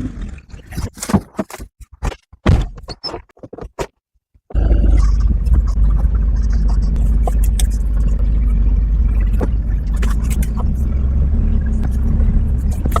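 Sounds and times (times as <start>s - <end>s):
car engine running: 4.5s - 13.0s.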